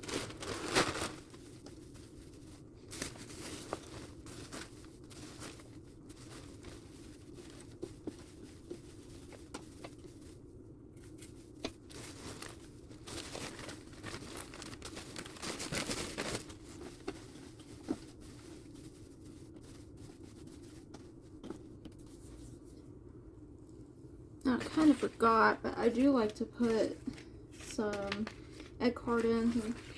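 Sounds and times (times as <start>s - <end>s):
hands crinkling dry bedding: 0.0s - 10.4s, 11.1s - 22.7s.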